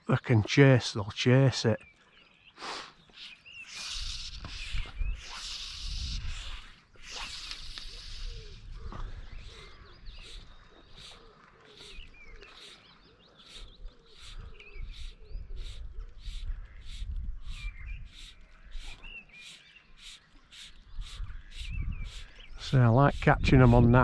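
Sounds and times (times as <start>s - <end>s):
small birds chirping: 0.0s - 24.0s
wind rumbling on microphone: 3.8s - 11.2s, 13.6s - 19.2s, 20.7s - 24.0s.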